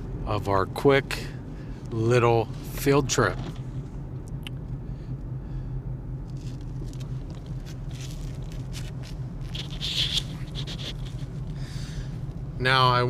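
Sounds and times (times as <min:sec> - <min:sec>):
car driving drone: 0:00.0 - 0:13.0
light rustling and crackling: 0:06.2 - 0:11.6.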